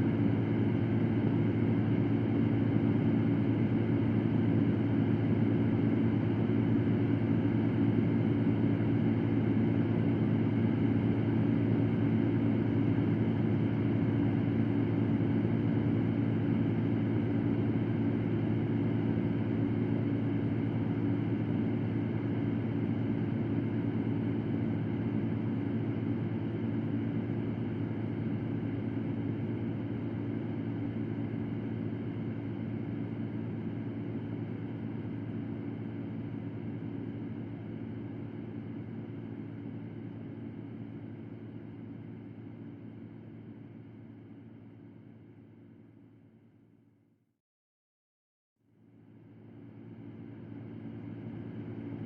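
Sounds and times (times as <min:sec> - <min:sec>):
electric fan running: 0:00.0 - 0:40.3.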